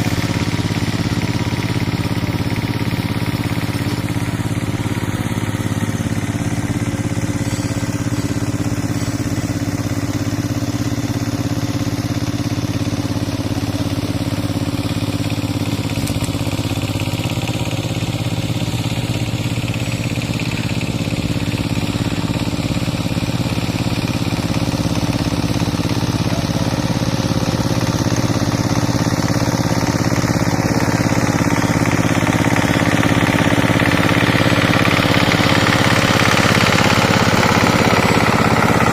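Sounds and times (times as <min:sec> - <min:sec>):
tiller diesel engine running: 0:00.0 - 0:38.9.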